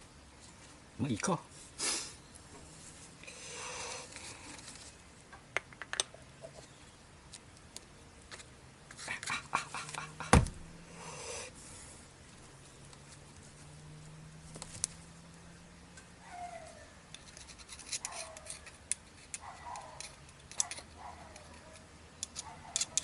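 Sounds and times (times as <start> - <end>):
loud thump: 10.3 - 10.7.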